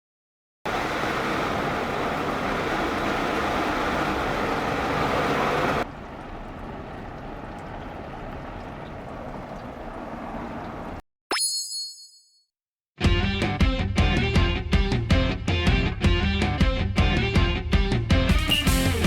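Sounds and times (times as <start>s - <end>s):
wind and rain rushing: 0.7s - 11.0s.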